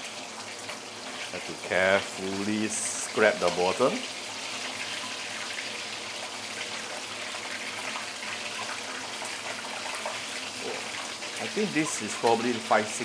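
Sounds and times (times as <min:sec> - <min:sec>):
fish deep-frying in hot oil: 0:00.0 - 0:13.0.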